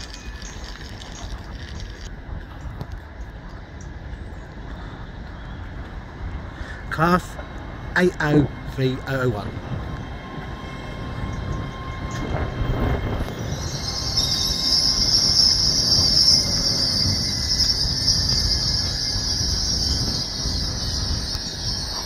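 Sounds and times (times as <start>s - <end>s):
train wheels rumbling on rails: 0.0s - 22.0s
high squeal: 8.3s - 22.0s.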